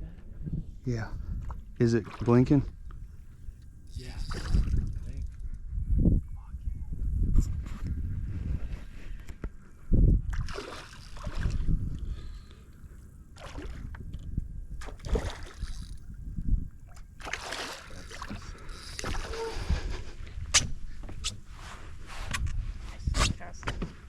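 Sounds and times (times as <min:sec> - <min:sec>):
wind buffeting microphone: 0:00.0 - 0:12.5, 0:13.3 - 0:23.9
water splashing and sloshing: 0:01.2 - 0:05.4, 0:10.2 - 0:21.9.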